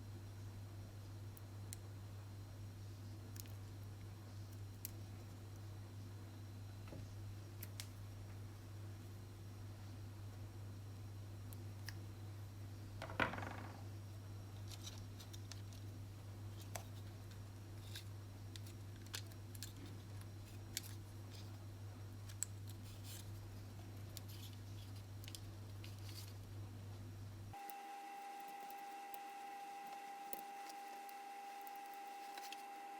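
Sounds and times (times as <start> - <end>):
small parts clicking and tapping: 16.5 - 21.6, 24.0 - 26.4.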